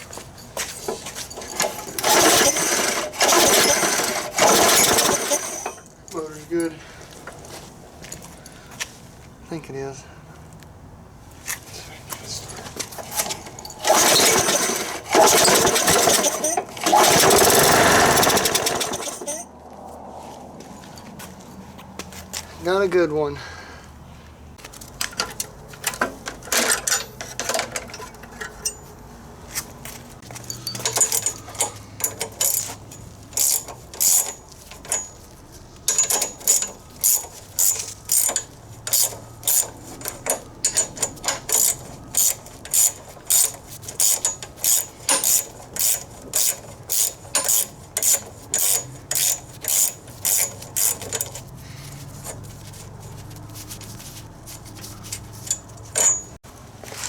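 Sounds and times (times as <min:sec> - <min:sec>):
ratchet wrench clicking: 0:01.4 - 0:05.9, 0:13.2 - 0:19.5, 0:30.3 - 0:35.2, 0:35.9 - 0:51.4, 0:55.4 - 0:56.3.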